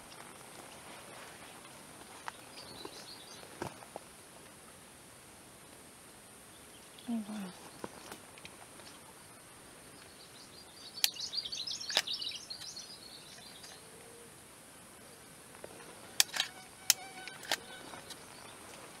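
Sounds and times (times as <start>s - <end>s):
sharp clicks: 16.1s - 18.2s.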